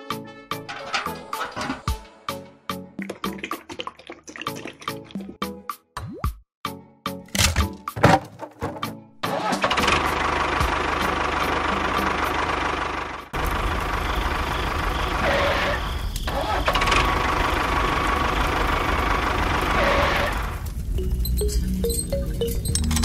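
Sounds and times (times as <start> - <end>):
tractor engine running: 0.7 - 2.0, 7.3 - 23.0.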